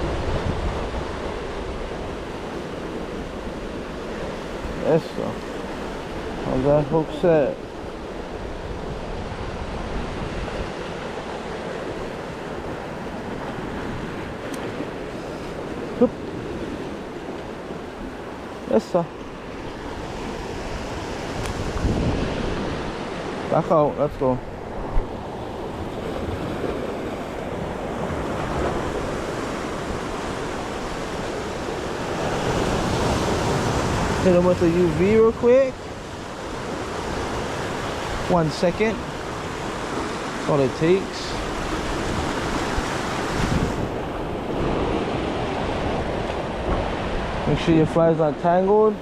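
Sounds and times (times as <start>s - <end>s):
wind on microphone: 0.0s - 2.5s, 8.0s - 18.5s, 19.6s - 23.4s, 41.3s - 47.6s
surf washing on shoreline: 0.0s - 49.0s.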